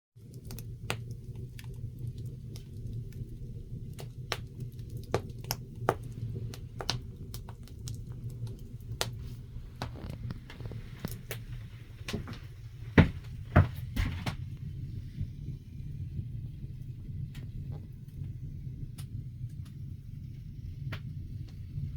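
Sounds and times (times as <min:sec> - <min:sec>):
wood fire crackling and popping: 0:00.2 - 0:21.9.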